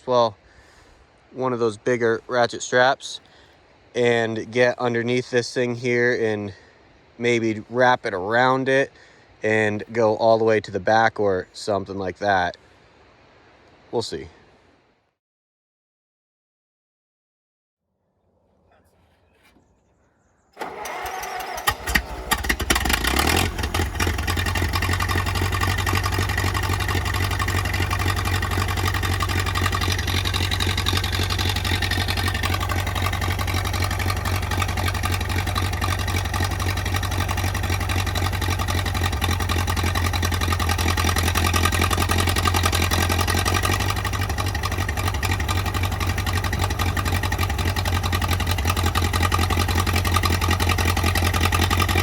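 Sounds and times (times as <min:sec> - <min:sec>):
engine idling: 0:20.6 - 0:52.0.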